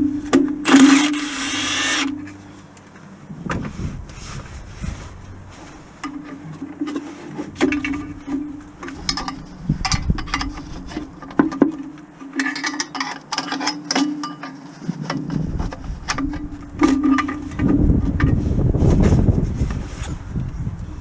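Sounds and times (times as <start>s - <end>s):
small power tool motor buzzing: 0.7s - 2.2s.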